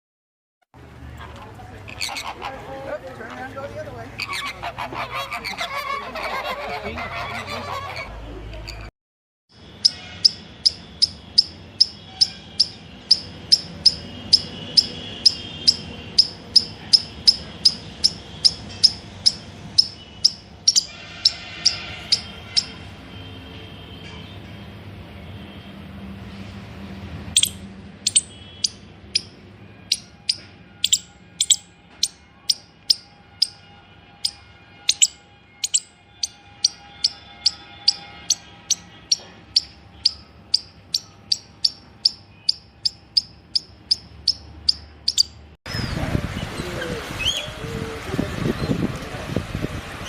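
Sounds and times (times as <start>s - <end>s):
bird chirping: 9.8s - 22.8s, 27.4s - 46.0s.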